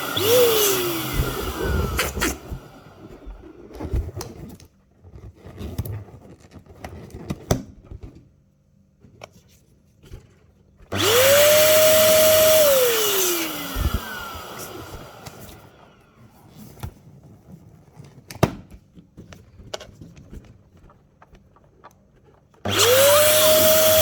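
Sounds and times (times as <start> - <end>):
electric balloon pump whining: 0.0 - 3.8, 10.9 - 16.4, 22.7 - 24.0
small clicks and rustles: 16.8 - 22.7.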